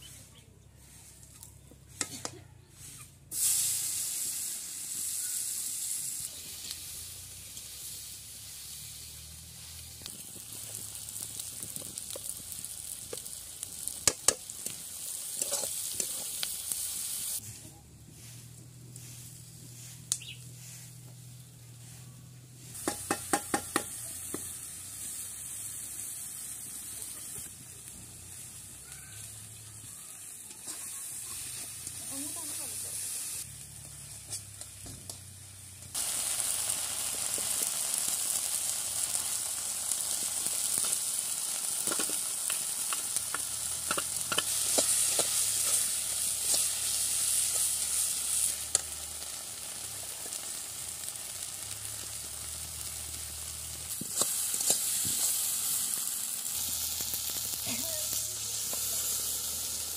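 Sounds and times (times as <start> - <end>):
vegetables sizzling in oil: 3.3 - 17.5, 18.2 - 59.9
metal spatula scraping pan: 15.4 - 16.3.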